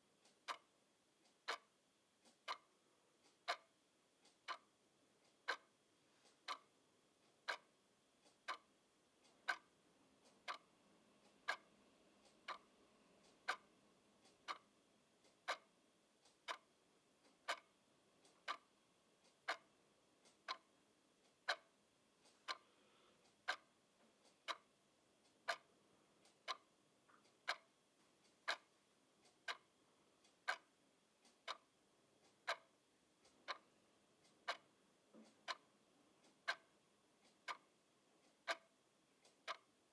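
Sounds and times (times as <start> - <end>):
clock ticking: 0.2 - 39.8.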